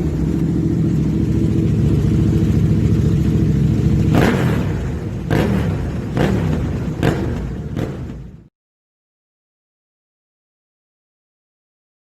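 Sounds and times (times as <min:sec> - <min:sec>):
motorcycle engine idling: 0:00.0 - 0:08.5.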